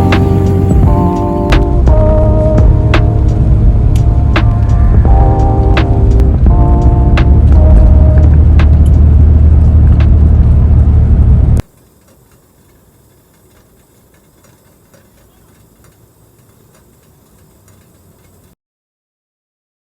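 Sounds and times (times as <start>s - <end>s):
vehicle engine rumbling: 0.0s - 18.5s
faint hiss: 11.6s - 18.6s.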